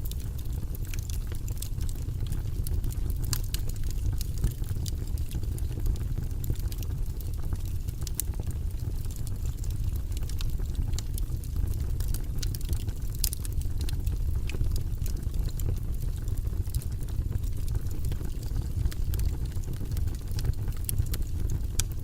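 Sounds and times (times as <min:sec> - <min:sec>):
fire crackling and popping: 0:00.0 - 0:22.0
low rush of flame: 0:00.0 - 0:22.0.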